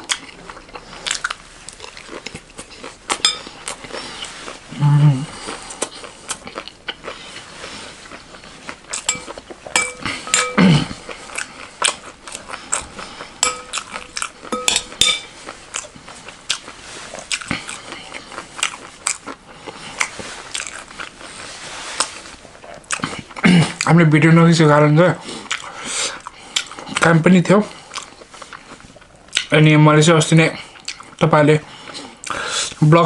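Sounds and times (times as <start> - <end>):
crunchy chewing: 0.0 - 24.0, 25.2 - 29.6
metal spoon clinking glass bowl: 3.2 - 3.5, 9.1 - 10.7, 13.4 - 15.3.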